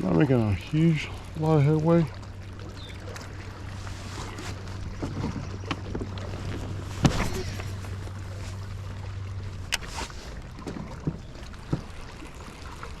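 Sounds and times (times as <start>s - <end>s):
water sloshing against hull: 0.0s - 13.0s
knocks on kayak: 7.0s - 7.7s.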